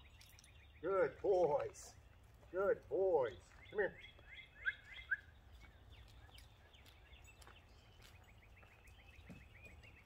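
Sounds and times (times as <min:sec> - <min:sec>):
bird chirps: 0:00.0 - 0:01.2, 0:03.4 - 0:10.0.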